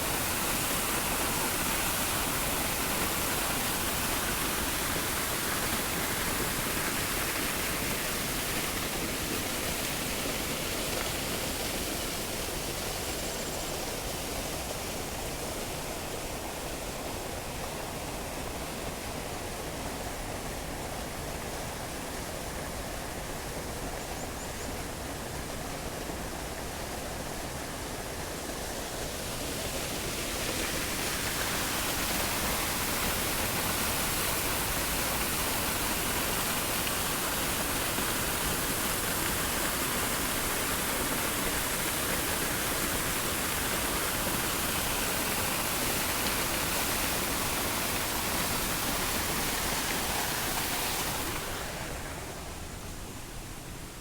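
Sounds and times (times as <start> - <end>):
waterfall rushing: 29.4 - 52.8.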